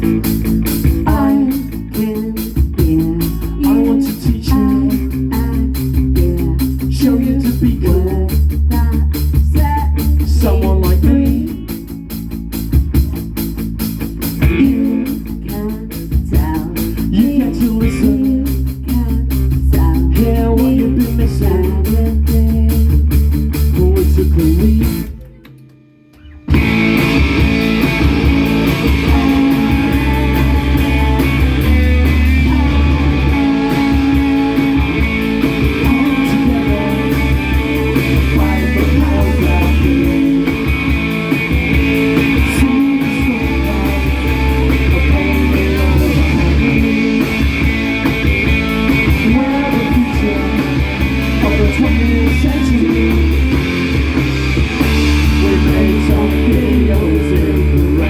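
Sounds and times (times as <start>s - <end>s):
rock band playing: 0.0s - 58.0s.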